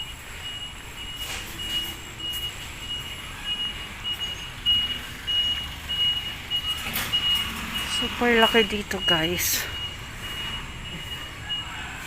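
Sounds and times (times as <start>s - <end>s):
high-pitched beeps: 0.0s - 11.9s
outdoor background noise: 0.0s - 12.0s.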